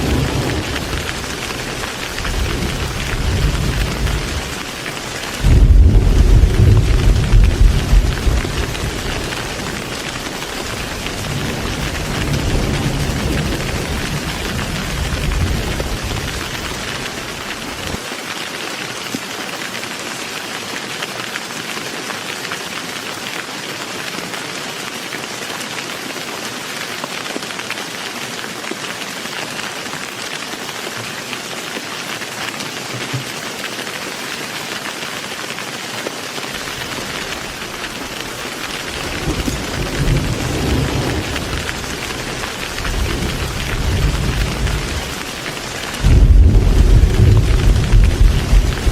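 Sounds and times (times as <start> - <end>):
low thunder rumble: 0.0 - 4.6, 5.4 - 18.0, 36.6 - 48.9
heavy rain falling: 0.0 - 48.9.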